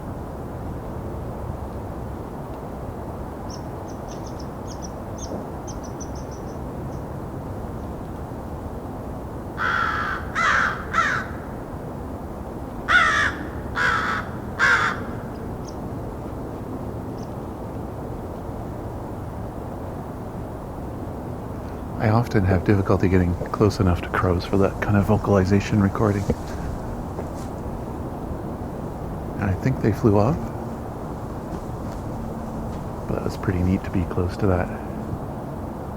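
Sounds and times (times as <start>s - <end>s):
low background rumble: 2.8s - 35.9s
crows cawing: 9.6s - 11.6s, 12.9s - 15.4s, 23.4s - 27.9s.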